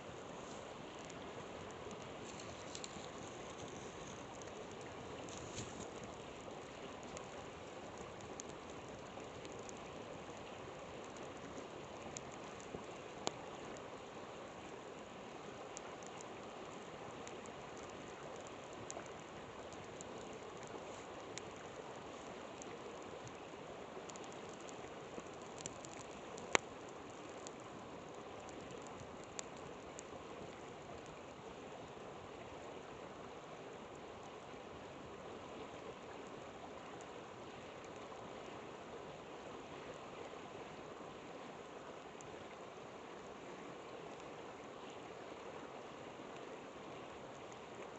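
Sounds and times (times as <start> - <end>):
campfire crackling and popping: 0.0 - 31.9, 36.1 - 38.3
river flowing: 0.0 - 47.9.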